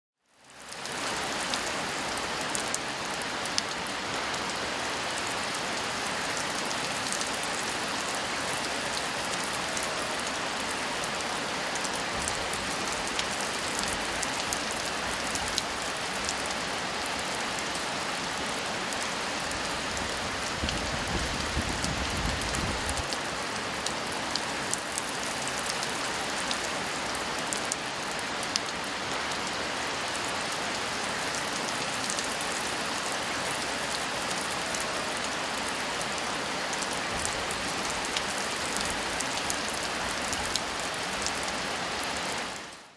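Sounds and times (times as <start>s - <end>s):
steady rain falling: 0.2s - 42.9s.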